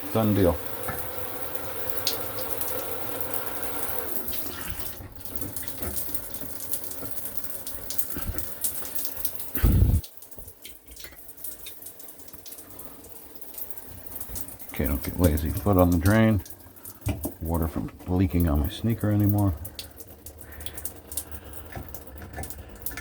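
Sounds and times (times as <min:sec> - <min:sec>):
shower water running: 0:00.0 - 0:23.0
loud low thump: 0:09.6 - 0:10.0.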